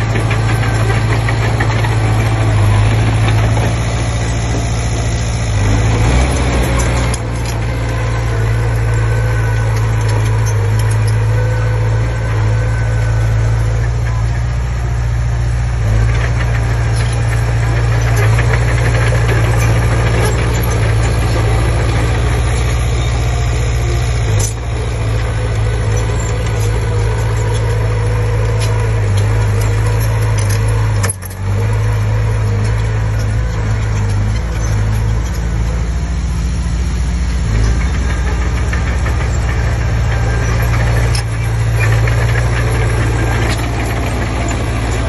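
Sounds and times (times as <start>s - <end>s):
bulldozer diesel engine running: 0.0s - 45.0s.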